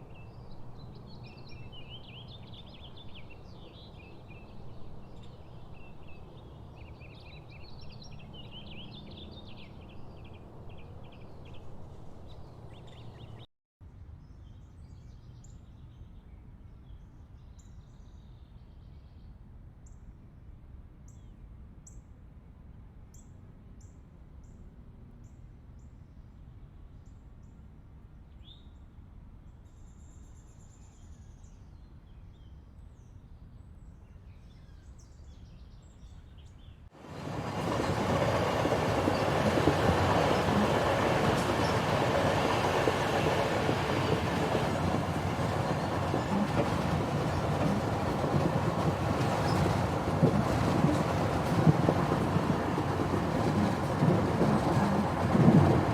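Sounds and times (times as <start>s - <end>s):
small birds chirping: 37.2s - 55.3s.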